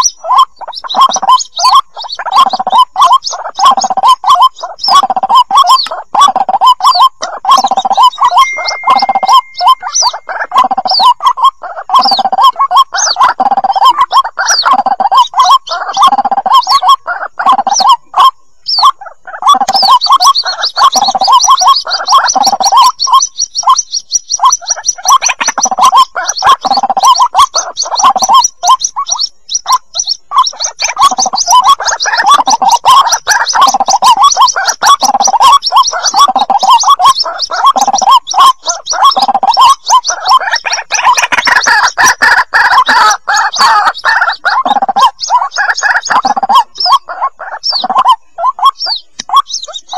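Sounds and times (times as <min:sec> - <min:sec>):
bird chicks calling: 0:00.0 - 0:49.9
high thin trill: 0:08.4 - 0:10.1.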